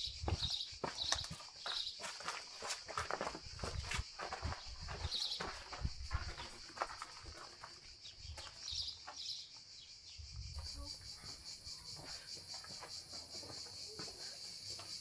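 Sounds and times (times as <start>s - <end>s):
bird chirps: 0.0s - 2.0s, 4.5s - 6.6s, 8.0s - 12.2s
insects buzzing: 0.0s - 15.0s
soft footsteps: 0.2s - 9.3s.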